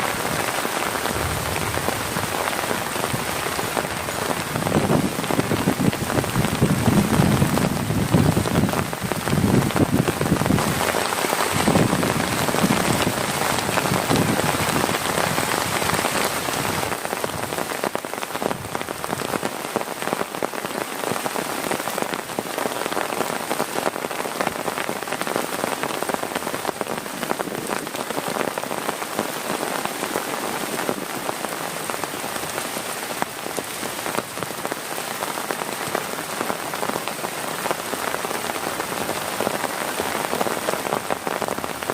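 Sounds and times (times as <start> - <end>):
heavy rain falling: 0.0 - 41.9
deep low sound: 1.0 - 2.8.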